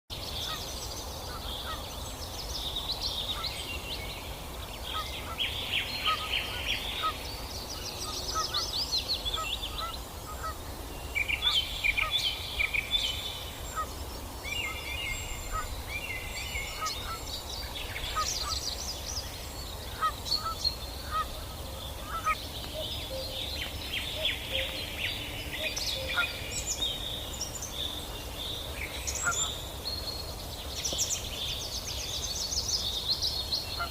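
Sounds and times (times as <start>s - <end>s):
geese calling: 6.0s - 7.2s, 8.3s - 8.7s, 9.3s - 10.6s, 15.4s - 15.8s, 16.7s - 17.3s, 17.9s - 18.7s, 19.8s - 23.4s, 25.5s - 26.5s.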